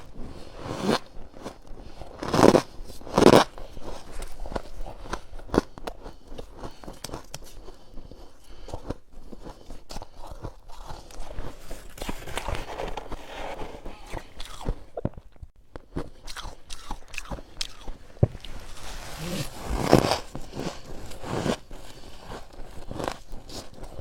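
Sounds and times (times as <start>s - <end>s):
chewing crunchy frost: 0.0s - 24.0s.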